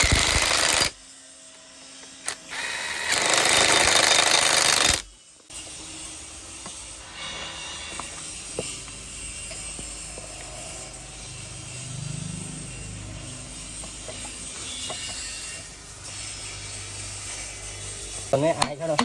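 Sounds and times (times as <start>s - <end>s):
low hum: 6.1s - 14.9s.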